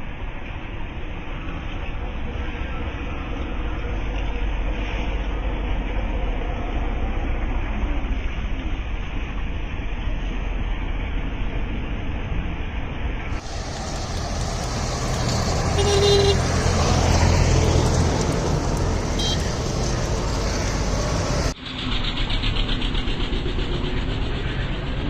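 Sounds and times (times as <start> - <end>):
vehicle engines running: 0.0 - 25.0
short horn toots: 15.6 - 16.5.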